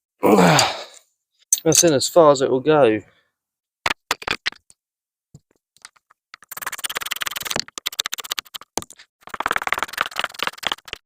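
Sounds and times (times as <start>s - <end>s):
hand tools clicking on metal: 1.5s - 2.0s.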